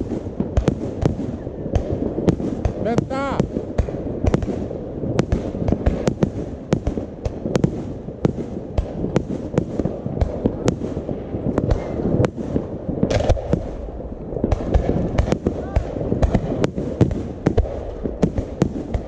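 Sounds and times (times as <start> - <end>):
distant explosions rumbling: 0.0 - 19.0
fireworks bangs: 0.0 - 19.0.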